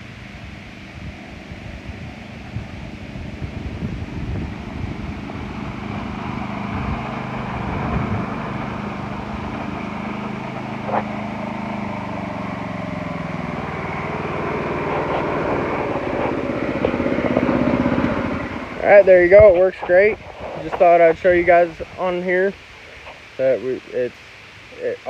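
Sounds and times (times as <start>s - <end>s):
lawn tractor engine running: 0.0s - 21.6s.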